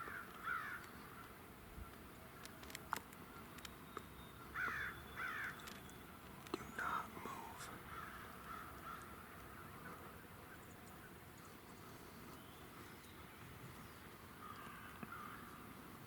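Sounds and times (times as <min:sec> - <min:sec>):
crows cawing: 0:00.0 - 0:01.3, 0:04.5 - 0:05.6, 0:07.8 - 0:10.0, 0:14.4 - 0:15.6
small clicks and ticks: 0:00.2 - 0:04.1, 0:05.4 - 0:06.8.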